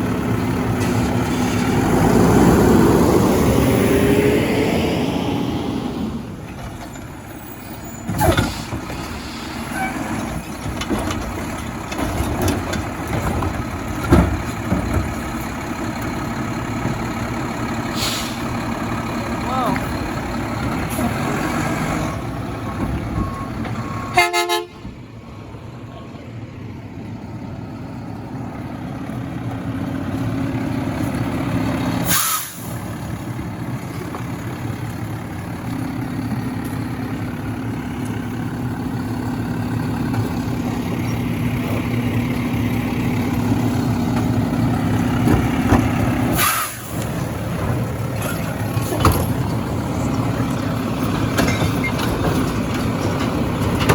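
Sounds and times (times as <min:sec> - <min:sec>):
garbage truck running: 0:00.0 - 0:53.9
short horn toot: 0:24.1 - 0:24.8.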